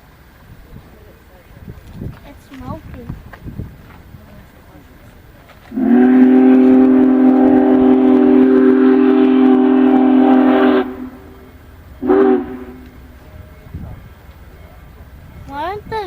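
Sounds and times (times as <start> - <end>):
steam locomotive whistle blast: 5.7 - 14.0.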